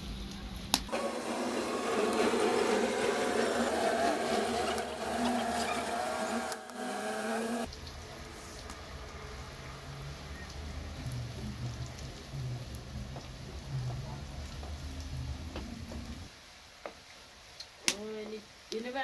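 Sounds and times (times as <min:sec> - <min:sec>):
fries frying in hot oil: 0:00.0 - 0:07.0, 0:07.6 - 0:19.0
low hum: 0:00.9 - 0:07.7.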